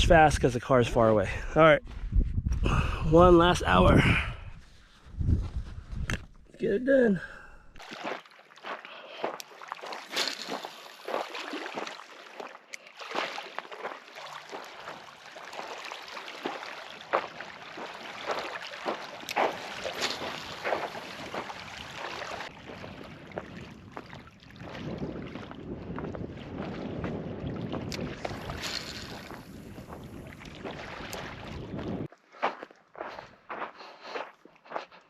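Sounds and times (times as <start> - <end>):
wind buffeting microphone: 1.8 - 6.5, 20.2 - 32.1
footsteps crunching on rocks: 7.8 - 15.0, 16.4 - 22.5, 28.3 - 30.8, 32.4 - 35.0.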